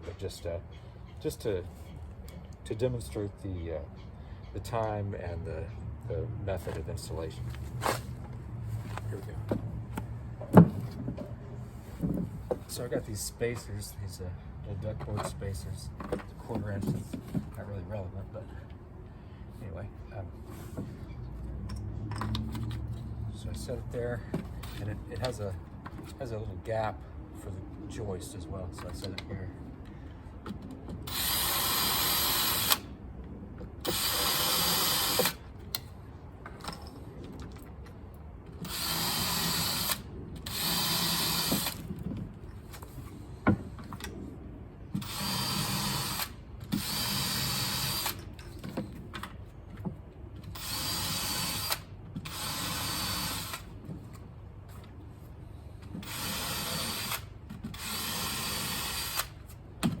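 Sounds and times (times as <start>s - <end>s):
power drill bursts: 31.1s - 32.8s, 33.8s - 35.4s, 38.6s - 41.8s, 45.0s - 48.3s, 50.5s - 53.7s, 56.0s - 59.4s.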